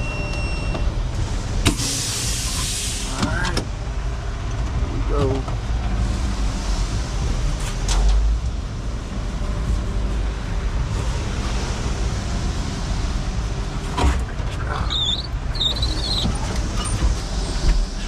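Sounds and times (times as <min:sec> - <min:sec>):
diesel truck engine rumbling: 0:00.0 - 0:18.0
high wavering squeaks: 0:14.8 - 0:17.0.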